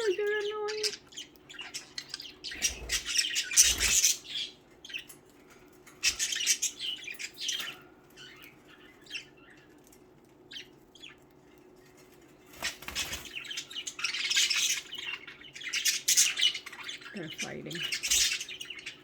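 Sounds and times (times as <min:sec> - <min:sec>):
budgerigars chattering and squawking: 0:00.0 - 0:19.0.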